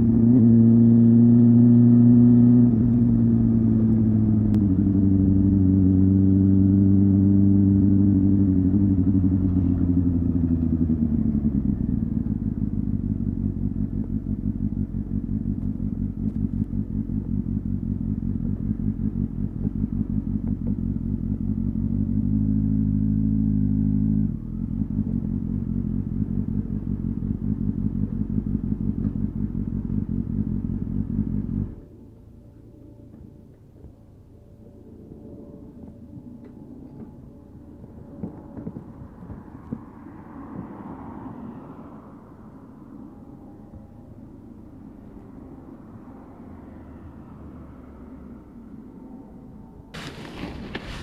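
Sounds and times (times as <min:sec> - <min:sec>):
motorcycle engine idling: 0:09.6 - 0:21.9.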